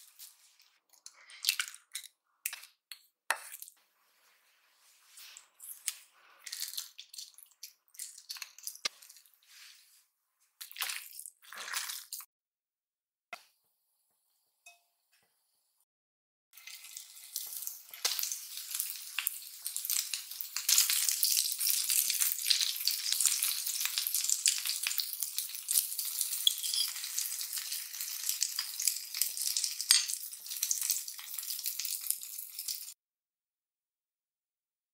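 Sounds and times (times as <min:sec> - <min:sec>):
patties sizzling in a pan: 0:16.6 - 0:33.0.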